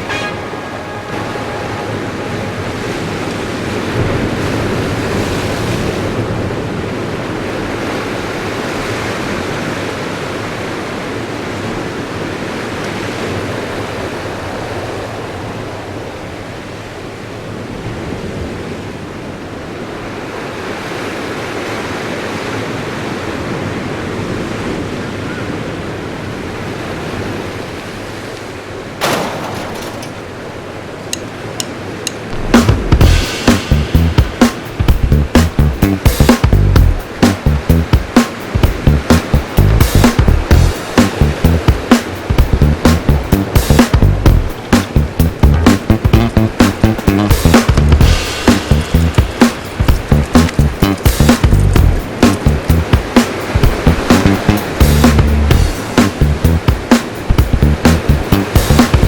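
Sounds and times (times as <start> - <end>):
ocean waves washing in: 0.0 - 59.0
wind on microphone: 36.4 - 59.0.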